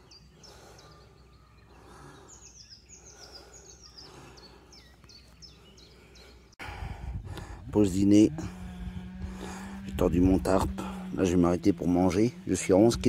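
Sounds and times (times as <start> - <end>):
songbirds chirping: 0.0 - 13.0
low background rumble: 6.6 - 13.0.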